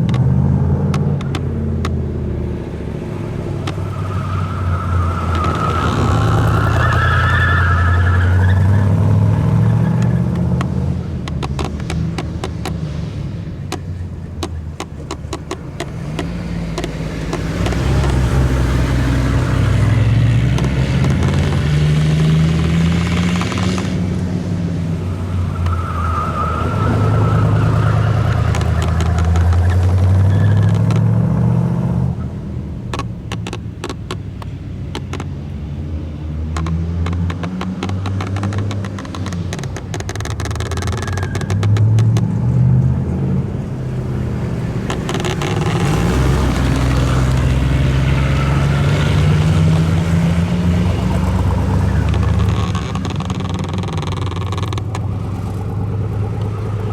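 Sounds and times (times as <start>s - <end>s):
sharp clicks: 0.0s - 2.4s, 3.5s - 13.0s, 13.7s - 24.3s, 27.4s - 31.2s, 32.9s - 35.6s, 36.5s - 42.3s, 44.5s - 48.1s, 50.9s - 56.9s
car engine revving: 0.0s - 56.9s.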